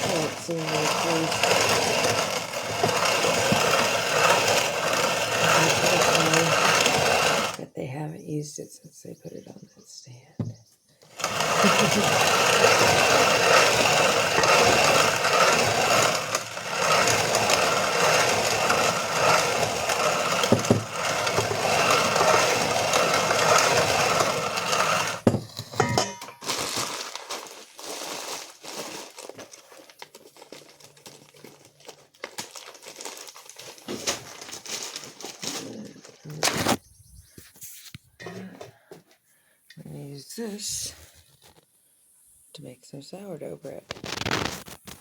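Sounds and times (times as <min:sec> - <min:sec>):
hand-cranked grain mill grinding: 0:00.0 - 0:07.7, 0:11.0 - 0:36.8, 0:43.9 - 0:45.0
scattered clicks and rustles: 0:43.8 - 0:45.0.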